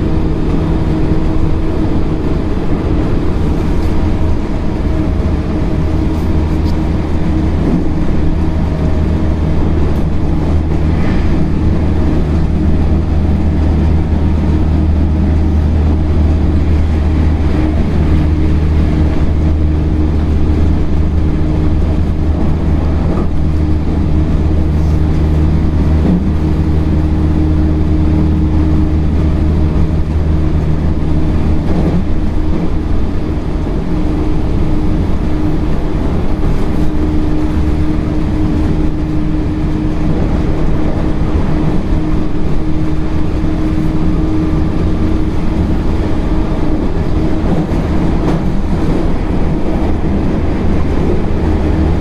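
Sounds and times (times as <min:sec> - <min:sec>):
constant train hum: 0:00.0 - 0:52.0
train wheels rumbling on rail: 0:00.0 - 0:52.0.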